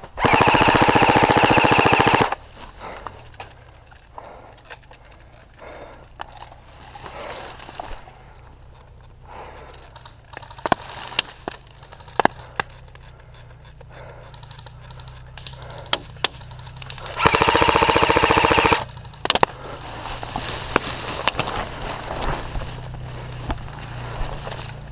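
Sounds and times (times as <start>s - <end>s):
airsoft guns firing: 0.2s - 2.4s, 15.4s - 19.6s.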